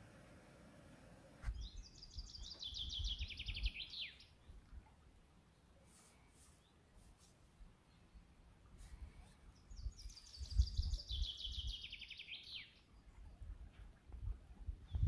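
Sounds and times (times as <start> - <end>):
songbird singing: 1.3 - 7.0, 7.6 - 15.0
wind rumble on microphone: 1.4 - 3.8, 9.7 - 11.9, 13.1 - 15.0.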